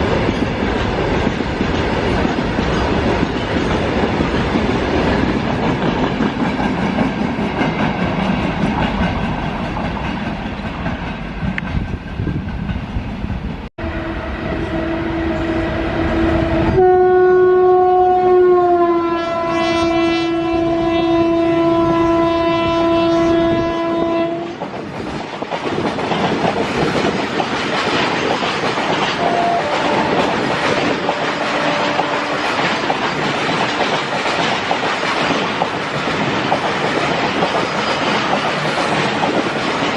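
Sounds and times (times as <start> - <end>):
locomotive horn blast: 13.8 - 24.5, 29.2 - 32.6
train wheels clattering over rail joints: 24.5 - 39.9.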